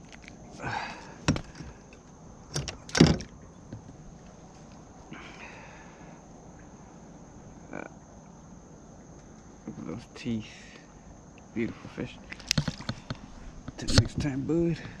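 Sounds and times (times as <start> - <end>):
rustle: 0.0 - 15.0
knocks and thumps against kayak: 1.2 - 1.8, 12.4 - 15.0.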